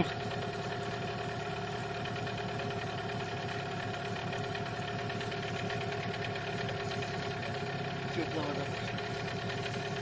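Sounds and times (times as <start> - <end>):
outboard motor idling: 0.0 - 10.0.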